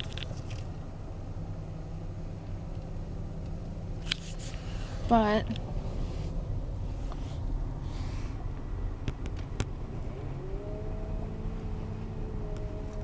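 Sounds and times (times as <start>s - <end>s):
engine and road rumble: 0.0s - 13.0s
rising whine: 8.4s - 13.0s.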